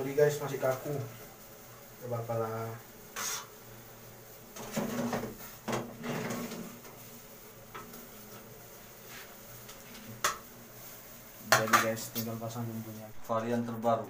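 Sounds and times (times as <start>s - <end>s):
metal spatula scraping a pot: 6.0s - 6.7s.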